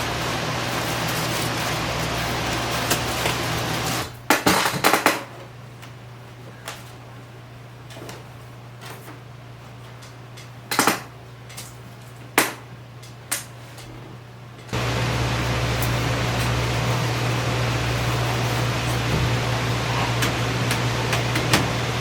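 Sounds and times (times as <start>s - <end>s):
low steady hum: 5.4s - 22.0s.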